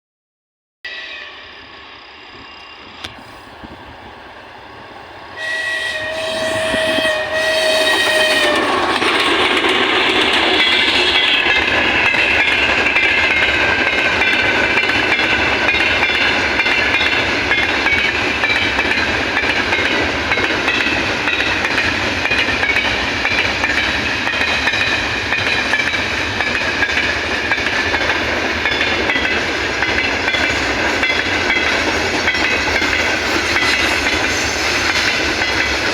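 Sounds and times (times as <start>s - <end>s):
train rumble: 1.1s - 35.9s
locomotive horn: 5.4s - 8.8s
train wheel clatter: 5.4s - 35.9s.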